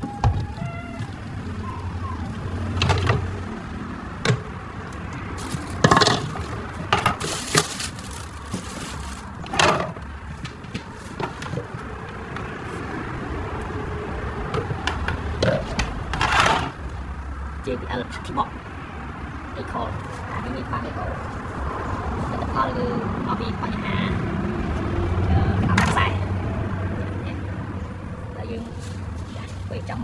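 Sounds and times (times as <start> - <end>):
handling knocks and clicks: 0.0 - 12.9, 14.4 - 16.9
short rustle: 5.4 - 9.6.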